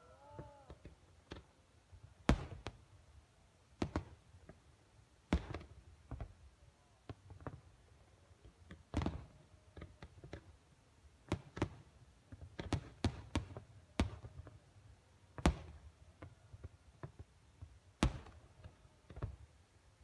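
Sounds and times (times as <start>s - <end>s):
distant fireworks bangs and pops: 2.2s - 2.8s, 3.8s - 4.6s, 5.3s - 6.4s, 8.6s - 10.5s, 11.2s - 14.6s, 15.4s - 19.5s.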